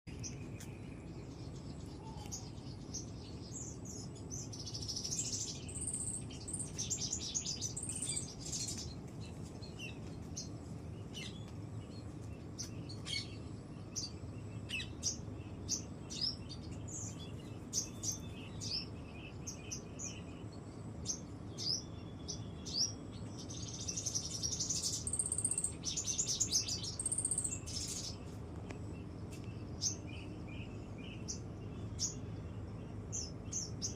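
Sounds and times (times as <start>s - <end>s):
birds chirping and singing: 0.1s - 33.9s.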